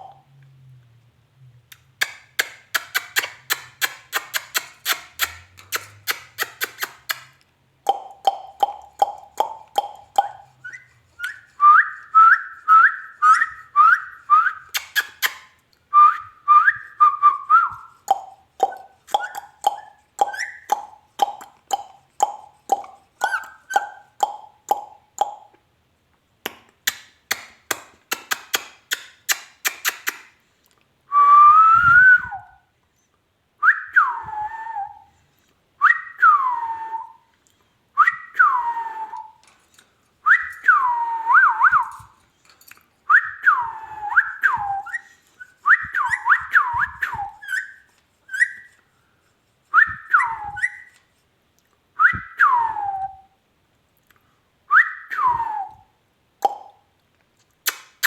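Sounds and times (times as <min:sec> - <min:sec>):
sharp clicks: 0:01.7 - 0:07.4
parrot whistling: 0:07.9 - 0:25.5, 0:43.1 - 0:48.8, 0:49.8 - 0:51.0.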